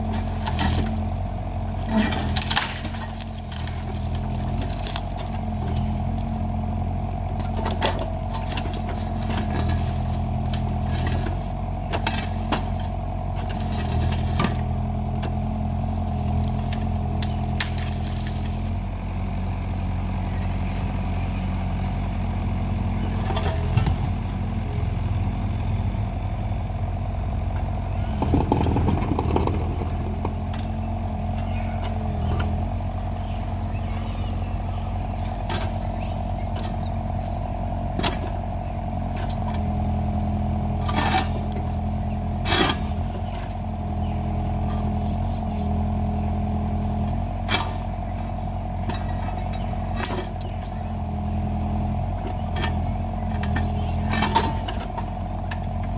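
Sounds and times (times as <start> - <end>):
excavator diesel engine running: 0.0 - 55.9
short rattle: 28.1 - 30.6
knocks and clanks: 28.1 - 30.7.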